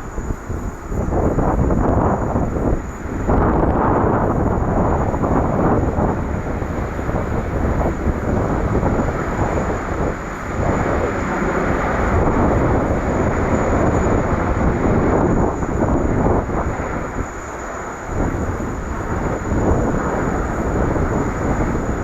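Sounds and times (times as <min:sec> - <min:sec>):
jet engine roaring: 0:00.0 - 0:22.0.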